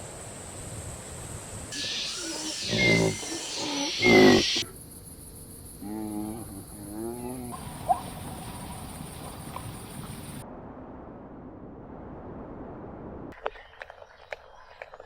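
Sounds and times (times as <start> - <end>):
animal calling: 1.8 - 4.8, 5.8 - 10.4.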